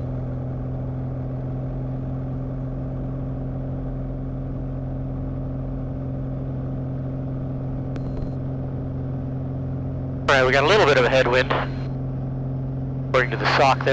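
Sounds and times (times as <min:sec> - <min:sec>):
light aircraft engine droning: 0:00.0 - 0:13.9
faint click with high tone: 0:08.0 - 0:08.4.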